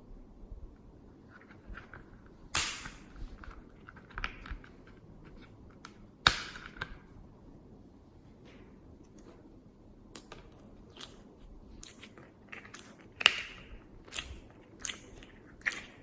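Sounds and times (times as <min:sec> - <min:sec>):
loud sharp snaps: 0:02.5 - 0:03.1.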